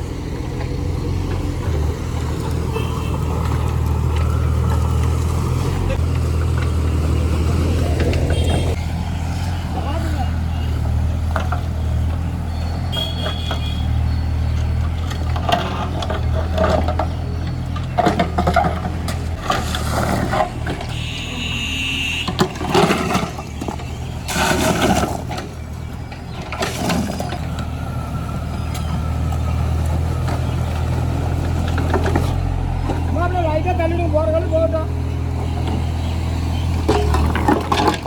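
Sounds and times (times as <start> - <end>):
diesel engine running: 0.0 - 38.0
metal clanks and rattles: 14.5 - 21.0, 36.6 - 38.0.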